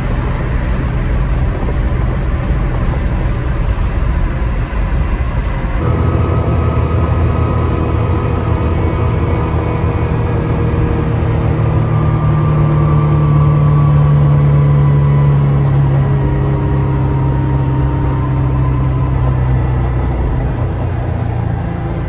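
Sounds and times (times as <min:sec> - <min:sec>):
car engine drone from inside cabin: 0:00.0 - 0:22.0.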